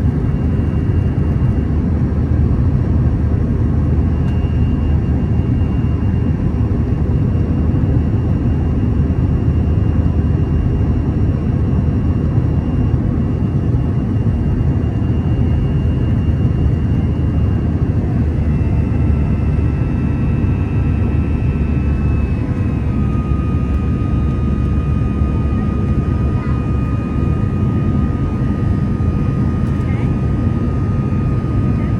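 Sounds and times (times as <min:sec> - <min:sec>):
faint jet engine whine: 0:00.0 - 0:31.9
jet engine rumble: 0:00.0 - 0:31.9.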